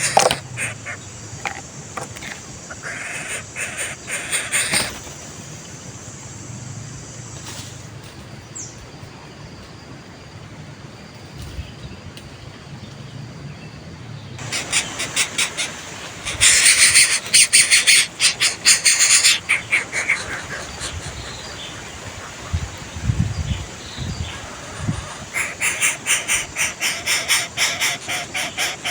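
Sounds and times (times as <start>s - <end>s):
bird rasping chatter: 0.0s - 5.1s, 14.4s - 22.9s, 23.7s - 28.9s
outdoor background: 0.0s - 28.9s.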